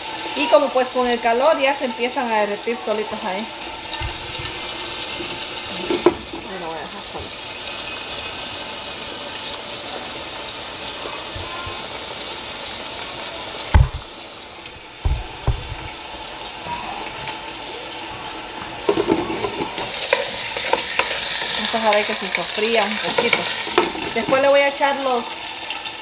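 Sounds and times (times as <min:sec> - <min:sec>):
chicken sizzling in a pan: 0:00.0 - 0:26.0
wooden spoon scraping a pan: 0:03.7 - 0:08.0, 0:18.8 - 0:24.6
knocks: 0:13.8 - 0:14.1, 0:15.0 - 0:15.9.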